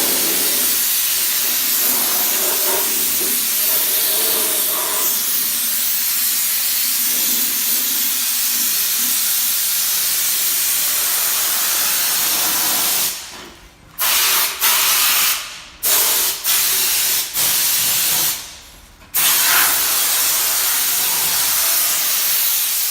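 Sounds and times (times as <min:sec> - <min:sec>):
hiss of rushing air: 0:00.0 - 0:05.7.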